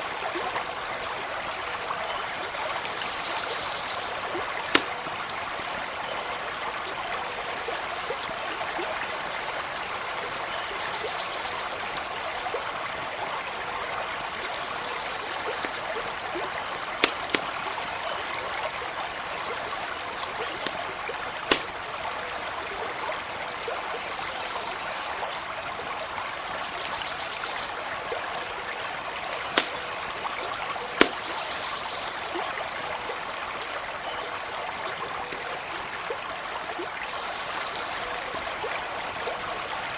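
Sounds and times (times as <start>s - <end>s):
stream running: 0.0s - 39.9s
campfire crackling: 3.7s - 37.1s
sharp fire pops: 4.7s - 5.3s, 16.8s - 17.8s, 20.4s - 22.0s, 29.3s - 30.0s, 31.0s - 31.4s.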